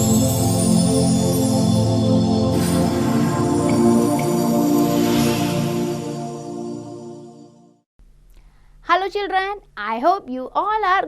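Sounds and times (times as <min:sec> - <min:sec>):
calm new-age music: 0:00.0 - 0:07.9.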